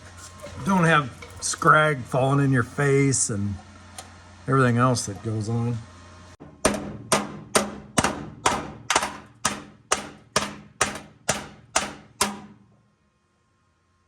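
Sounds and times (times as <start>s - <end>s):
hammer striking sheet metal: 6.4s - 12.7s.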